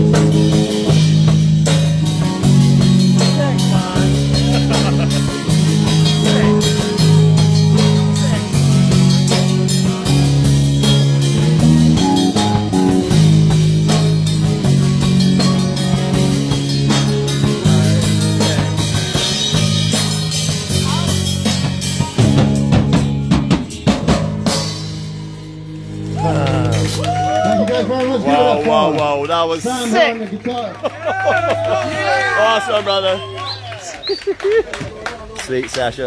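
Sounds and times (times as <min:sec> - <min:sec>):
drum kit hitting hard: 0:00.0 - 0:25.5
low bass notes: 0:00.0 - 0:30.0
live band playing: 0:00.0 - 0:35.4.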